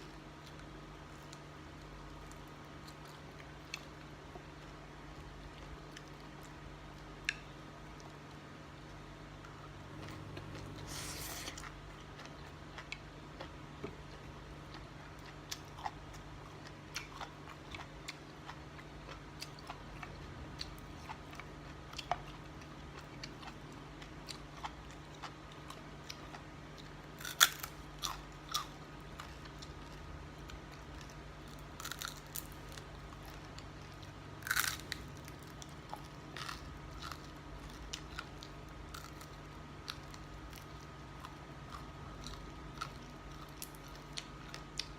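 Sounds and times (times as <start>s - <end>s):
person chewing food: 0.0s - 44.9s
steady low hum: 0.0s - 44.9s.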